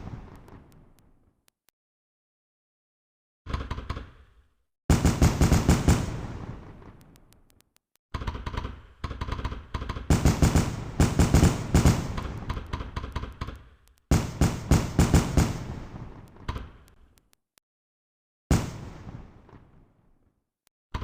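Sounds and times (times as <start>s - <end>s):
fireworks crackling: 0.0s - 1.1s, 10.1s - 13.3s, 14.1s - 16.5s.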